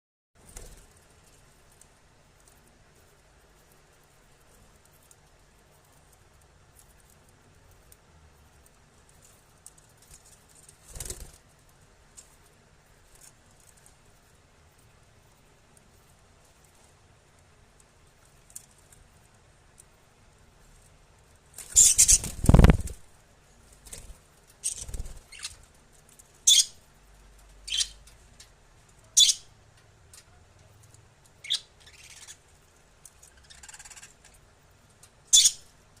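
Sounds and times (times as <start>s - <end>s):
wings flapping and rustling: 0.4s - 7.4s, 8.6s - 14.2s, 20.8s - 26.5s
lovebirds chirping: 21.6s - 23.0s, 24.6s - 25.6s, 26.4s - 26.8s, 27.6s - 28.1s, 29.1s - 29.5s, 31.3s - 32.5s, 35.3s - 35.7s.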